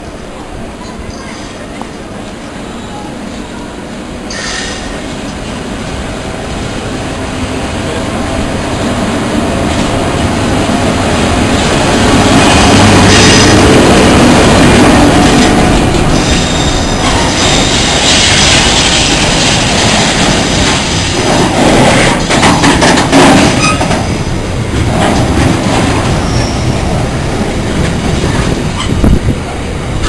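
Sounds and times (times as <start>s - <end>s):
train moving: 0.0s - 30.0s
wheels clicking over rail joints: 15.2s - 27.0s.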